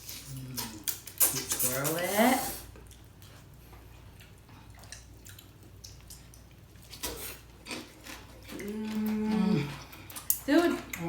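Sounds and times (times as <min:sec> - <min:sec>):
wet eating sounds: 0:00.0 - 0:11.0
person humming: 0:08.6 - 0:09.7.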